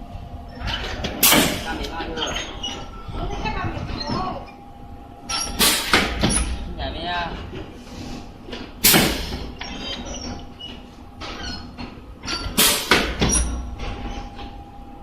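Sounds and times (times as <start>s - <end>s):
faint steady machine hum: 0.0s - 15.0s
sharp metallic clunks: 5.3s - 6.7s.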